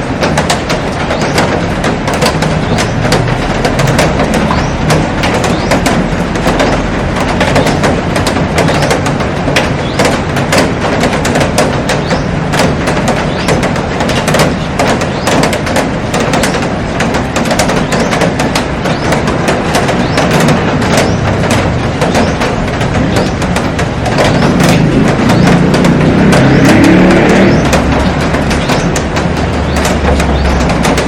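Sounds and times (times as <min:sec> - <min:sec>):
heavy rain on glass roof and plants: 0:00.0 - 0:31.0.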